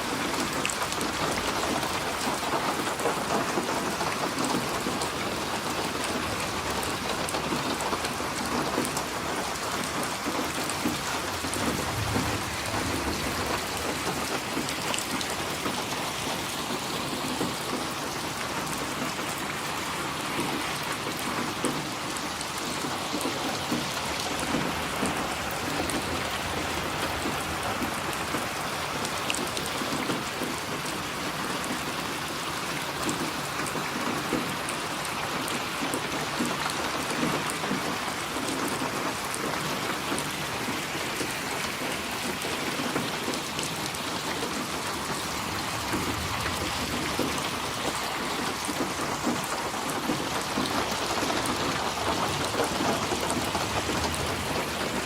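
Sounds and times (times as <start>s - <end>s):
steady rain pattering: 0.0s - 55.0s
distant thunder rumble: 6.0s - 17.1s, 22.6s - 30.9s, 44.4s - 55.0s.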